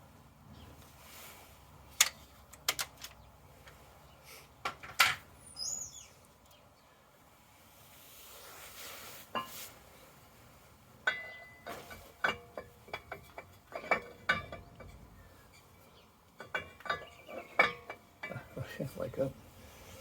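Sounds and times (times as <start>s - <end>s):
soft hiss: 7.2s - 11.0s.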